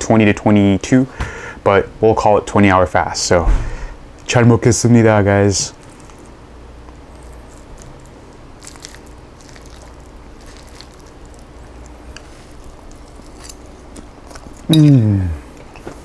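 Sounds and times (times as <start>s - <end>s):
chewing: 7.1s - 16.0s.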